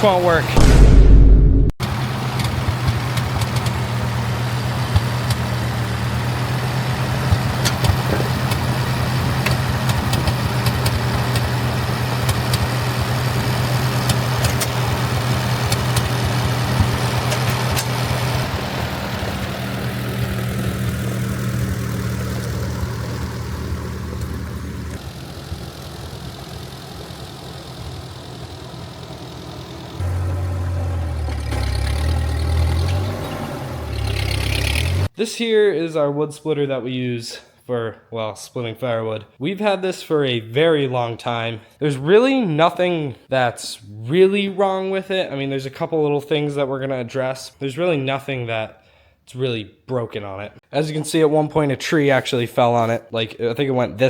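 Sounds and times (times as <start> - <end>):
tractor engine humming: 1.4 - 35.1.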